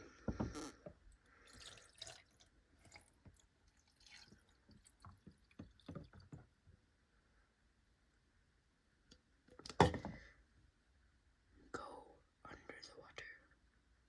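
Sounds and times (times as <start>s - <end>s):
water dripping and trickling: 1.3s - 6.6s.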